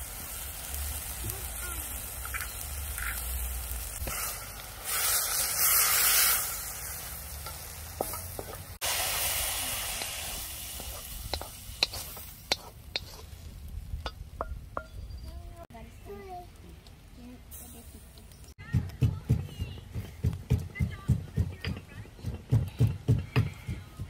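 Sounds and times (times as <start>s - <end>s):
food sizzling in a wok: 0.0s - 16.2s, 17.4s - 18.6s.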